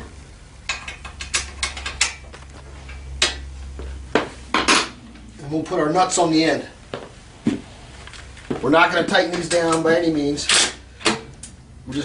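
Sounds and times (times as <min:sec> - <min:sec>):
bolts and hardware clicking: 0:00.6 - 0:03.4.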